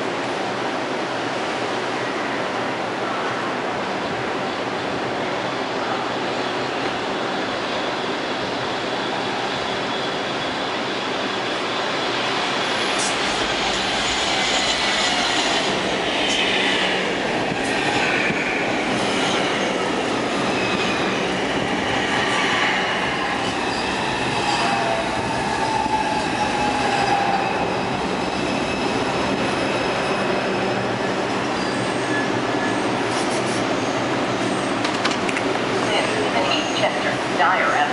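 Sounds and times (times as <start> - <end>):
subway train running through station: 0.0 - 37.9
wheel squeal: 31.5 - 33.0
rail clatter: 34.7 - 37.0.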